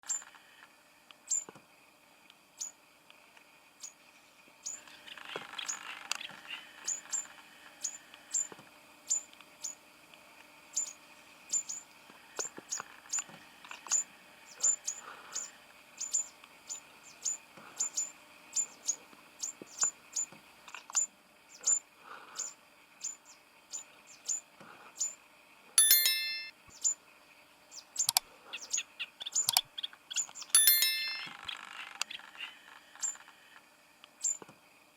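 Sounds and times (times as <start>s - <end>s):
bell-like bird trill: 25.8s - 26.5s, 30.6s - 31.4s.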